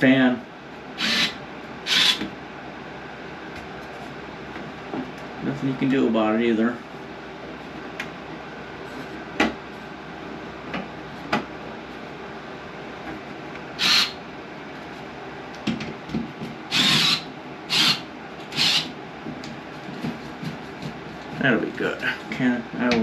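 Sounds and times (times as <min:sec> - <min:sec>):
harsh rasping tool noise: 0:01.0 - 0:02.2, 0:13.8 - 0:14.2, 0:16.7 - 0:18.9.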